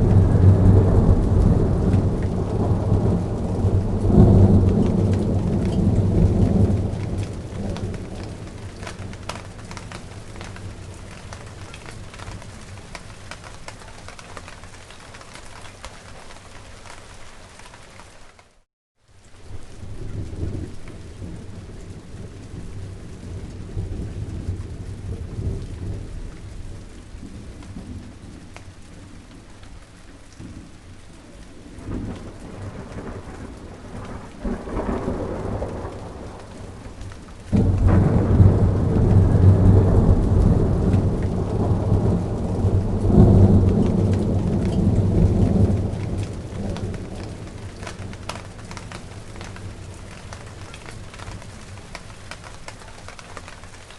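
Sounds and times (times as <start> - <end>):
thunder rolling: 0.0 - 14.1, 31.6 - 52.6
rain pattering on plants: 0.0 - 53.9.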